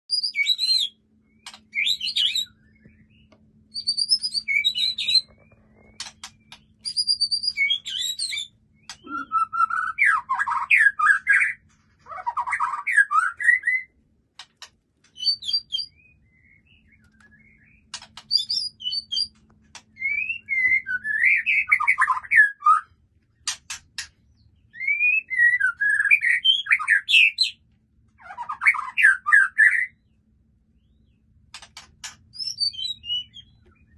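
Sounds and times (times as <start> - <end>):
songbird singing varied phrases: 0.1 - 11.6, 15.1 - 19.4, 32.3 - 33.9
sharp bird clicking notes: 1.4 - 1.8, 4.2 - 6.9, 7.5 - 9.2, 17.0 - 20.0, 31.5 - 32.6.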